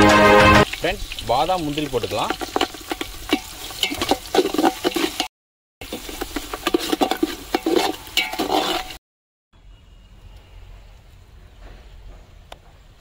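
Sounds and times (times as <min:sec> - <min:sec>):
onions sizzling in oil: 0:00.0 - 0:09.0
spoon scraping pot: 0:02.3 - 0:09.0.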